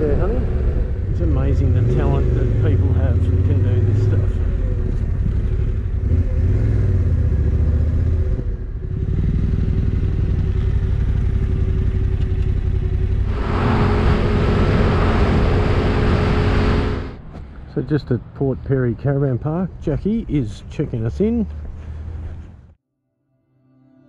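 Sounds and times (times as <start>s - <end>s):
motorcycle engine running: 0.0s - 17.2s
wind rushing over microphone: 13.2s - 17.6s.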